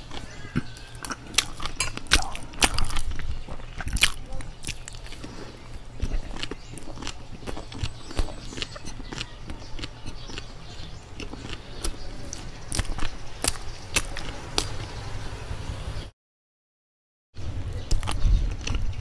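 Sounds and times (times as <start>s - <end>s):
chewing mouth clicks: 0.1s - 14.8s.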